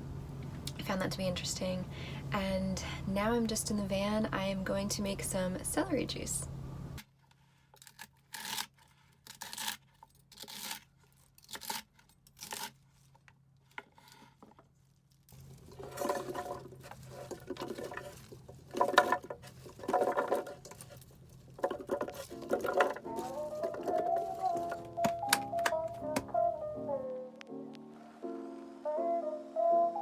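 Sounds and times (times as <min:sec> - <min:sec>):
celery stalks crunching: 0:15.3 - 0:25.7
electric juicer humming: 0:15.4 - 0:26.3.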